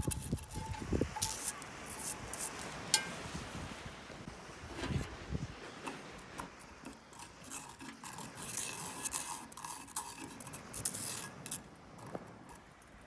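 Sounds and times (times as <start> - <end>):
metal utensil scraping a pot: 0.0 - 3.2, 4.7 - 11.6.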